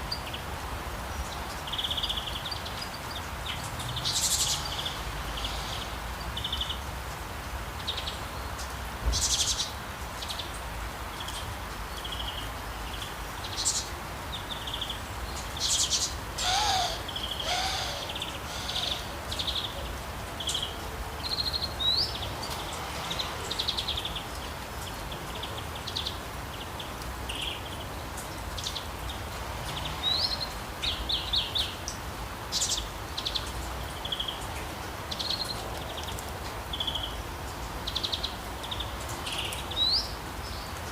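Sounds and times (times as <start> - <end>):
steady background hiss: 0.0 - 40.9
birds chirping and trilling: 12.0 - 22.5
low sliding bird call: 16.4 - 19.2.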